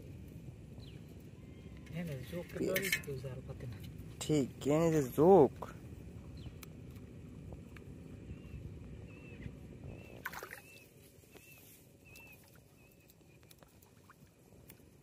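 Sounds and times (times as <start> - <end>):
water sloshing: 10.2 - 10.8.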